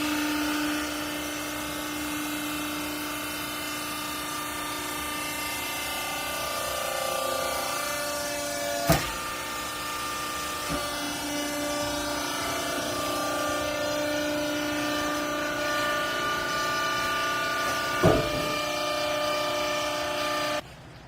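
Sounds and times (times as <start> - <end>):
baler motor humming and whining: 0.0 - 20.6
sharp thump: 18.0 - 18.5.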